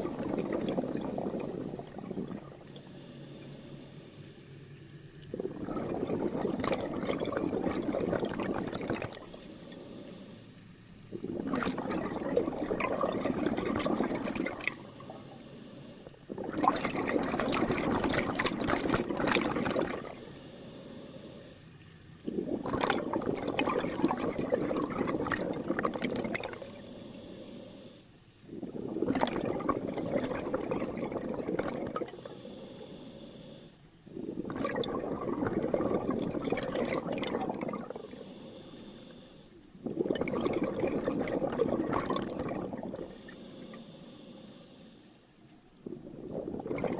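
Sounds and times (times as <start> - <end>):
regulator exhalation bubbles: 0.0 - 3.0, 5.2 - 9.8, 11.1 - 15.3, 16.3 - 20.3, 22.2 - 26.9, 28.5 - 32.5, 34.0 - 39.0, 39.7 - 43.8, 45.8 - 46.9
regulator inhalation hiss: 2.2 - 6.4, 8.4 - 11.9, 13.8 - 16.5, 19.8 - 21.7, 25.6 - 29.1, 30.4 - 34.4, 36.7 - 40.0, 41.7 - 46.5.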